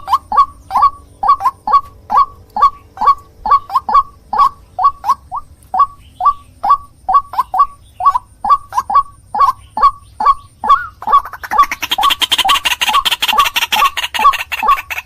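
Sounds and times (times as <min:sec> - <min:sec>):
bird croaking calls: 0:00.0 - 0:15.0.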